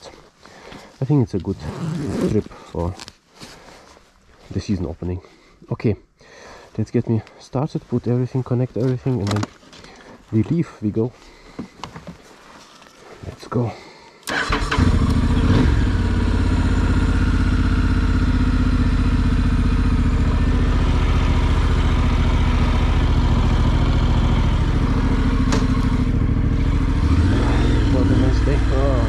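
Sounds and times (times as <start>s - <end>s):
motorcycle engine starting and idling: 14.2s - 29.0s.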